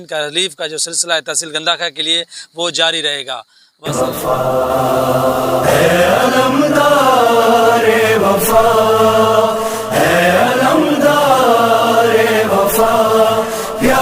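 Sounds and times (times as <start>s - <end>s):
person chanting a lament: 3.8s - 14.0s.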